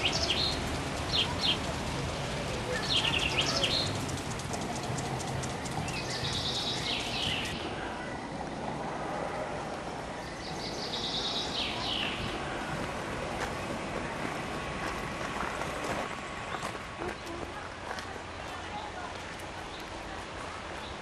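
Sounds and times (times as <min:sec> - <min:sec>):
songbird trilling: 0:00.0 - 0:01.8, 0:02.5 - 0:07.6, 0:10.2 - 0:12.3
steady outdoor hiss: 0:00.0 - 0:21.0.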